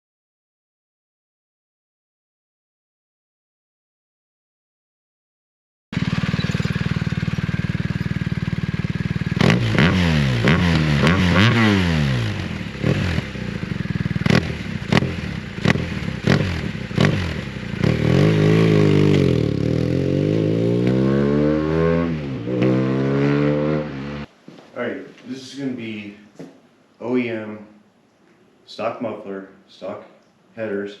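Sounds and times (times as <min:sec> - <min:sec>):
sharp exhaust cracks: 0:06.0 - 0:21.0
motorcycle engine revving: 0:06.0 - 0:24.3.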